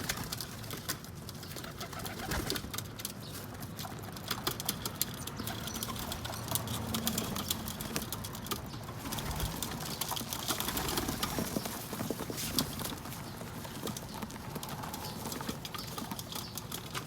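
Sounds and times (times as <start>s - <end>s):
beaks tapping on roof: 0.0s - 17.0s
pigeons cooing: 1.4s - 2.7s, 5.1s - 7.8s.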